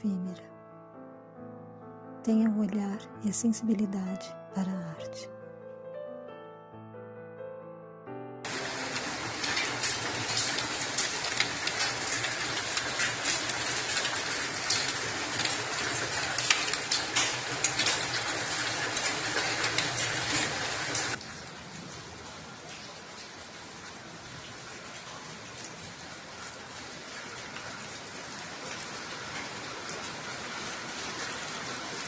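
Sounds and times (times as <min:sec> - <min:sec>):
rain with sharp drop splashes: 0:08.5 - 0:32.0
smooth rain hiss: 0:08.5 - 0:32.0.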